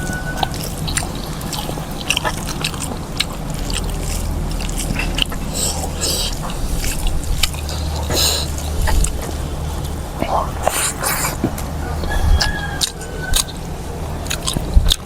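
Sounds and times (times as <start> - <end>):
chewing and mouth smacking: 0.0 - 15.0
hissing breath intakes: 5.4 - 9.3.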